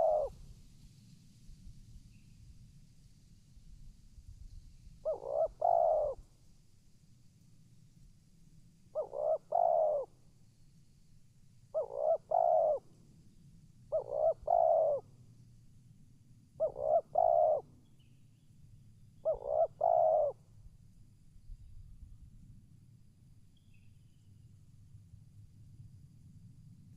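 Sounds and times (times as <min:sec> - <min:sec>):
dove cooing: 0:00.0 - 0:00.5, 0:05.0 - 0:06.3, 0:08.9 - 0:10.2, 0:11.7 - 0:13.0, 0:13.9 - 0:15.1, 0:16.6 - 0:17.8, 0:19.2 - 0:20.4.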